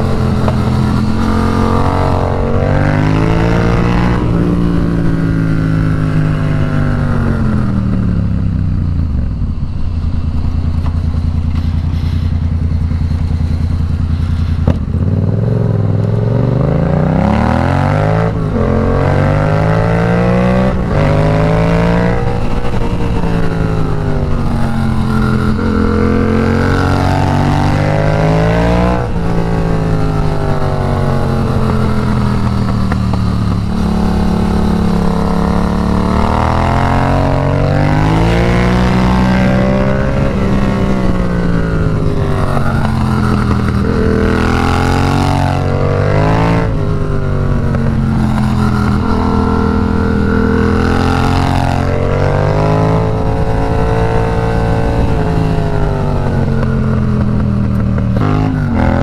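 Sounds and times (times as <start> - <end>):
motorcycle engine revving: 0.0 - 59.0
wind rush: 0.0 - 59.0.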